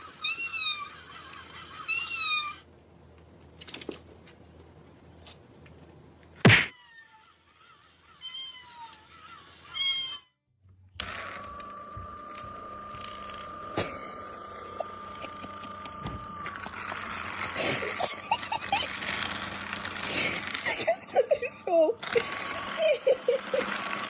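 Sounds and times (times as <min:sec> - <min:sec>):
cats meowing: 0:00.0 - 0:02.7, 0:06.5 - 0:10.3.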